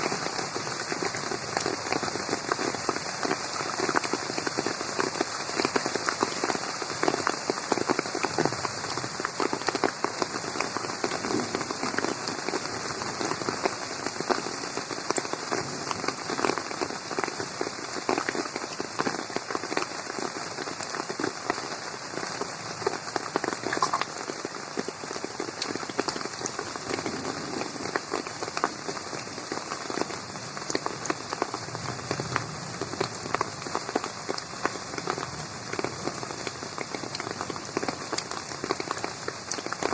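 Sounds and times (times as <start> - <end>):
rain falling on a pond: 0.0 - 39.9.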